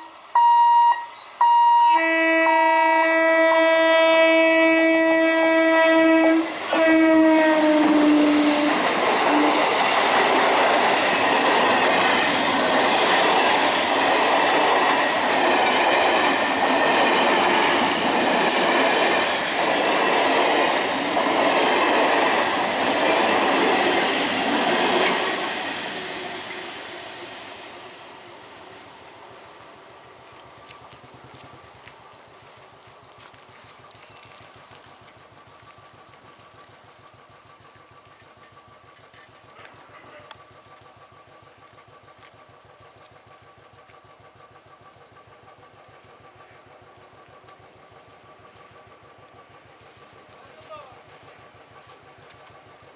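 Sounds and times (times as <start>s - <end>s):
train horn blast: 0.0s - 9.6s
train carriages passing: 0.0s - 52.9s.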